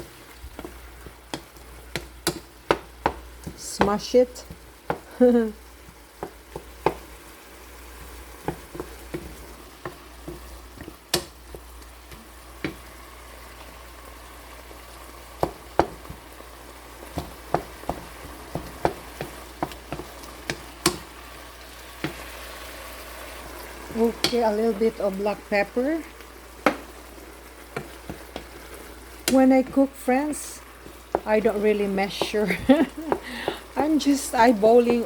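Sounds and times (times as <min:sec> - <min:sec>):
food sizzling in a pan: 0:00.0 - 0:35.0
utensil knocking against pan: 0:34.8 - 0:35.0.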